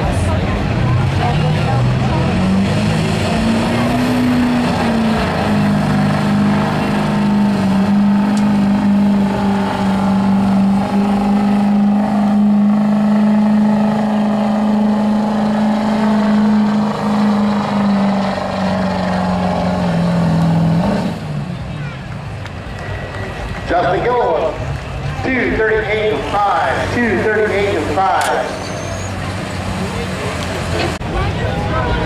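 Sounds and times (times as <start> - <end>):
truck engine at full throttle: 0.0 - 32.0.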